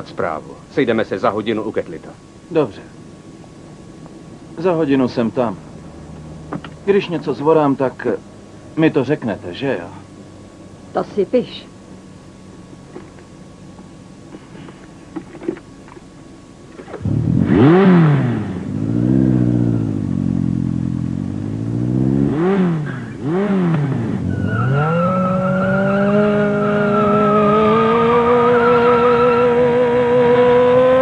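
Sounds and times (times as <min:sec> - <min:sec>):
sports car engine revving: 0:16.8 - 0:31.0.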